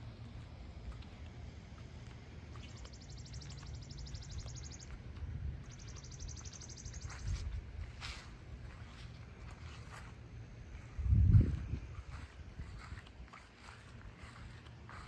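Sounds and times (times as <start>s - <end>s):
low rumble: 10.7s - 13.1s.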